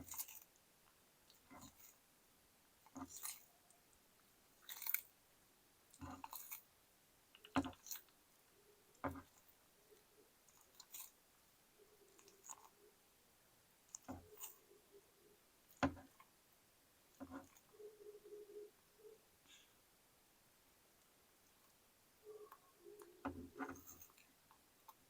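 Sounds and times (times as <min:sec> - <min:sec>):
turtle crunching food: 0:00.0 - 0:02.1, 0:02.8 - 0:05.2, 0:05.8 - 0:13.0, 0:13.8 - 0:16.4, 0:17.1 - 0:18.7, 0:21.0 - 0:25.0.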